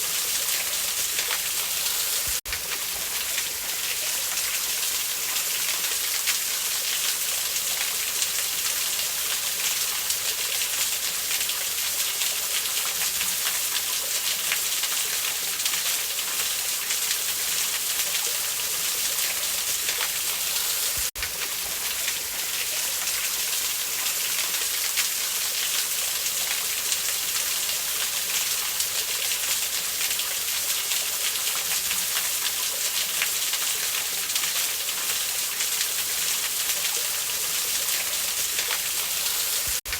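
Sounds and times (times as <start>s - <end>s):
waterfall rushing hiss: 0.0s - 2.4s, 19.6s - 21.1s, 38.1s - 39.9s.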